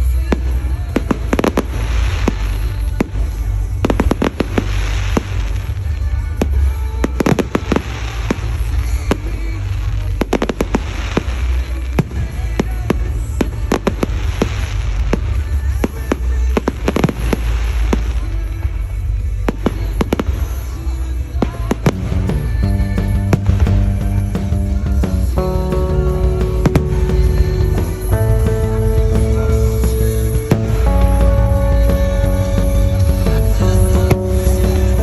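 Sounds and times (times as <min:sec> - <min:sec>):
heavy low rumble: 0:21.6 - 0:35.0.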